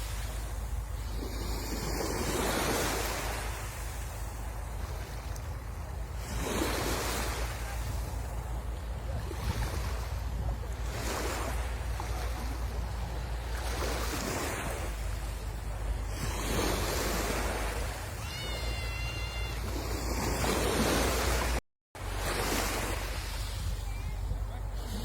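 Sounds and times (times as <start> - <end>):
sea waves breaking on shore: 0.0 - 25.0
wind rumbling on microphone: 0.0 - 25.0
short high-pitched call: 18.1 - 20.2.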